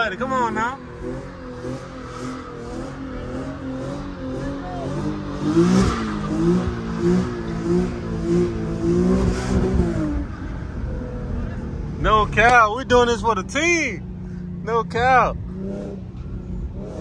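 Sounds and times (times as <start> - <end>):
car engine revving hard: 0.0 - 10.5, 15.5 - 17.0.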